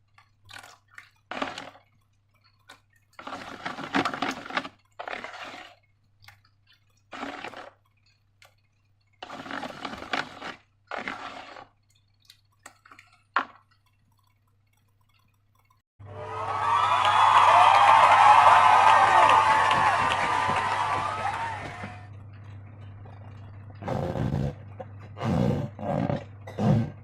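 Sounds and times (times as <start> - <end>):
slime squelching: 0.0 - 15.8
small clicks: 11.8 - 15.8.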